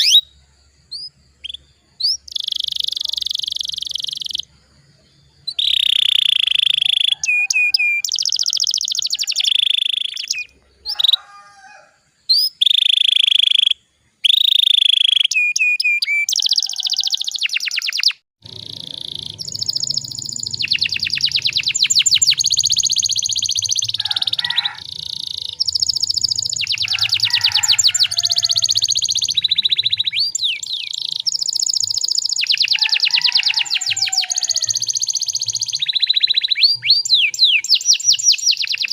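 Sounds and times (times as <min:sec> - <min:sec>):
canary singing trills: 0:00.0 - 0:38.9
low hum: 0:18.4 - 0:24.0.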